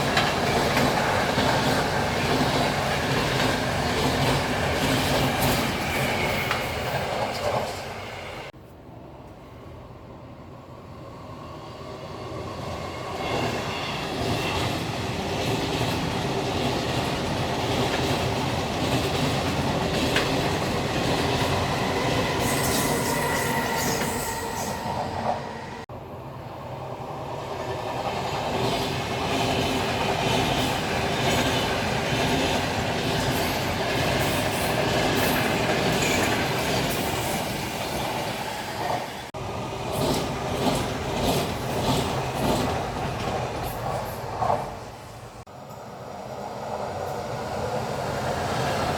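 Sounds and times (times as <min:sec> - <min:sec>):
train passing on rails: 0:00.0 - 0:48.9
wheels squealing on rail: 0:03.8 - 0:08.5, 0:20.2 - 0:25.8, 0:33.2 - 0:39.3.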